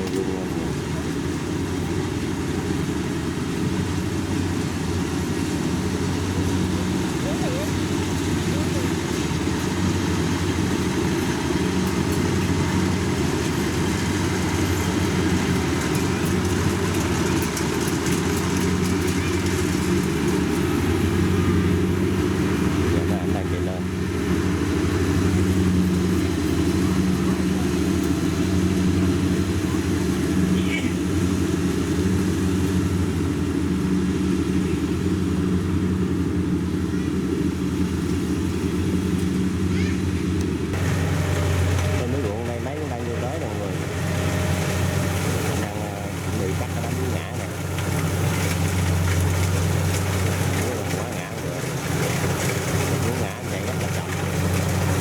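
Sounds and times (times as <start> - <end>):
combine harvester engine droning: 0.0 - 55.0.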